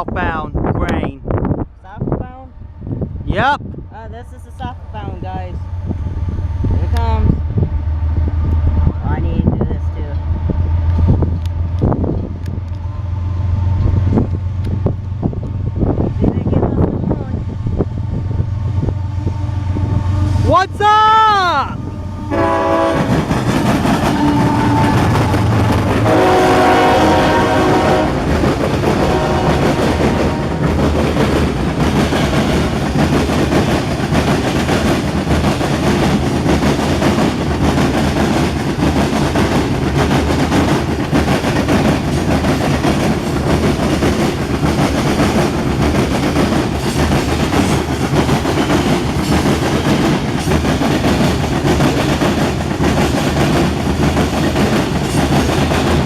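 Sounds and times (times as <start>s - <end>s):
freight cars rumbling: 0.0s - 20.9s, 21.6s - 56.0s
train engine rumble: 0.0s - 56.0s
locomotive air horn: 22.0s - 23.3s, 24.1s - 28.3s, 29.0s - 30.6s
wheels clacking on rail joints: 22.4s - 56.0s.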